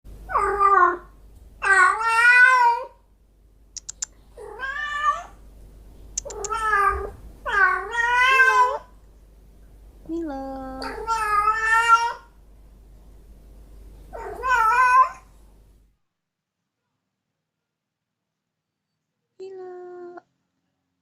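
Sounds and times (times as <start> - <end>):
cat meowing: 0.3 - 3.0, 3.8 - 5.4, 6.2 - 8.9, 10.8 - 12.3, 14.1 - 15.3
short clicks: 3.8 - 4.2, 6.2 - 6.6.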